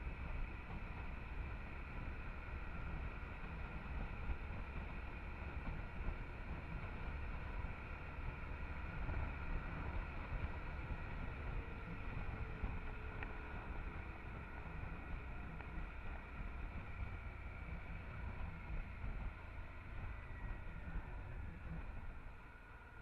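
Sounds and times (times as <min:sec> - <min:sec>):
motorcycle engine rumble: 0:00.0 - 0:23.0.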